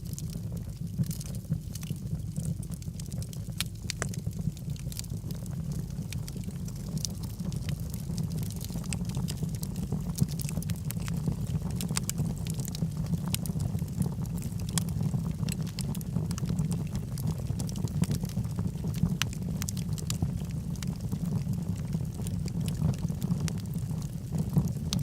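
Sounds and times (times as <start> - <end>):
fire crackling and popping: 0.0 - 25.0
low rumble of flames: 0.0 - 25.0.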